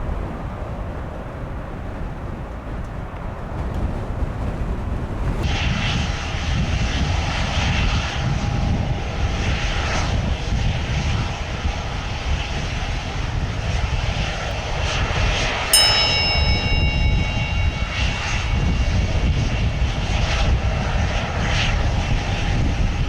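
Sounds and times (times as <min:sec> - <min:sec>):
faint steady tones: 0:15.8 - 0:22.6.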